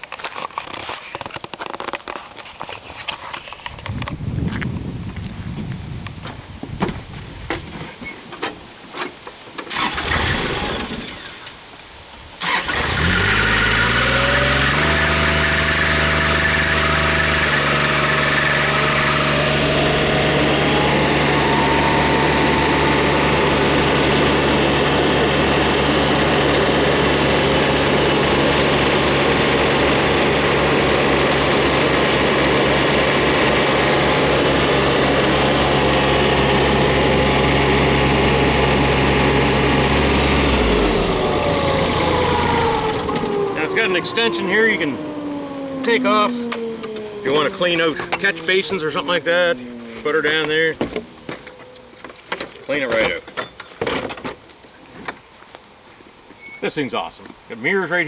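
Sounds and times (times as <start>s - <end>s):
small diesel engine running: 9.7s - 11.5s, 12.4s - 51.6s
faint rising whine: 15.3s - 51.8s
vacuum rushing noise: 15.4s - 50.5s.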